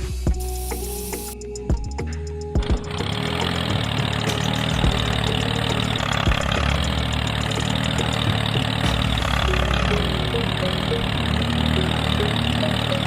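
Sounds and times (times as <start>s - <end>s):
small engine running: 2.6s - 13.0s.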